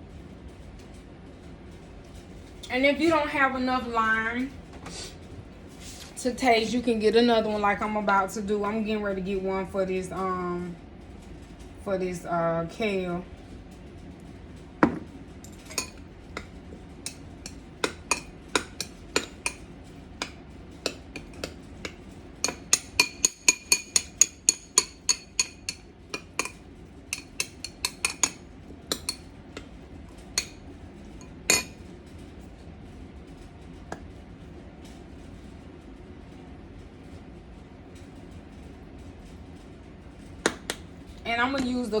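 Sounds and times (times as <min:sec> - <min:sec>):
metal utensils clinking on dishes: 0:14.9 - 0:16.5, 0:17.1 - 0:19.6, 0:20.2 - 0:29.7, 0:31.2 - 0:31.8.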